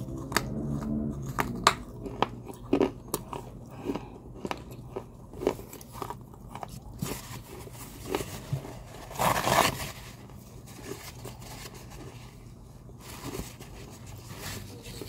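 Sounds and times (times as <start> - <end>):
chewing crunches: 0.0 - 8.8.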